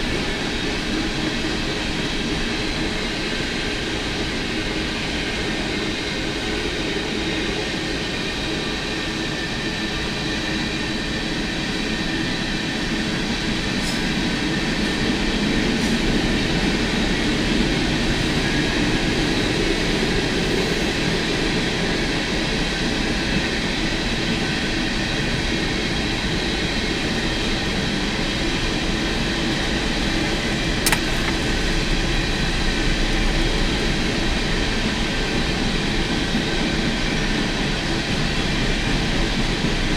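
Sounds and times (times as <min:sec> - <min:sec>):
sharp click: 0:30.8 - 0:31.6.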